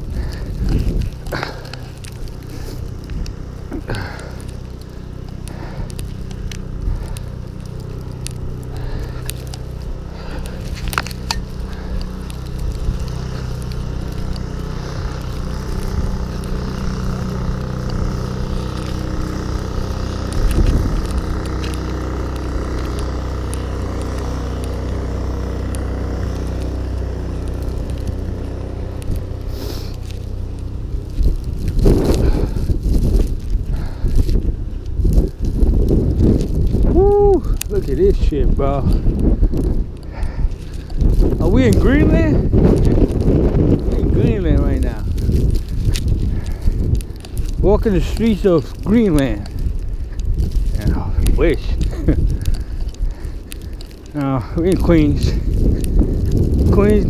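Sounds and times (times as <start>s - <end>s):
wind rumbling on microphone: 0.0s - 57.0s
footsteps in snow: 37.6s - 57.0s.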